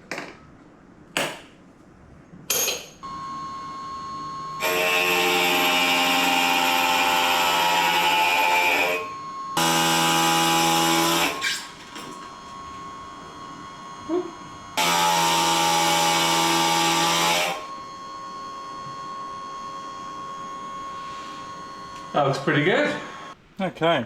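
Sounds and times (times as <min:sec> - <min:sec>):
steady hum with high tone: 0:00.4 - 0:23.5
power grinder grinding glass: 0:04.6 - 0:23.4.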